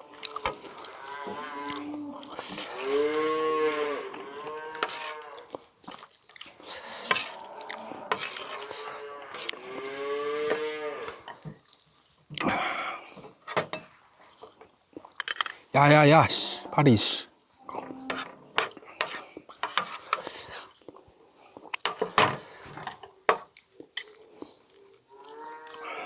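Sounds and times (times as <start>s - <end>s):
eating clicks: 0.0s - 1.0s, 4.7s - 6.8s
cow mooing: 0.0s - 5.6s, 7.4s - 11.3s, 15.8s - 17.0s, 17.6s - 18.2s, 25.2s - 26.0s.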